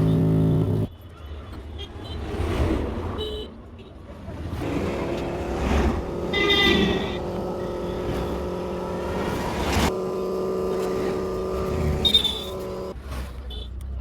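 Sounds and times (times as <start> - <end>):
street traffic: 0.0 - 14.0
car horn toots: 6.1 - 9.2, 9.8 - 12.9
steady hum: 7.2 - 12.9.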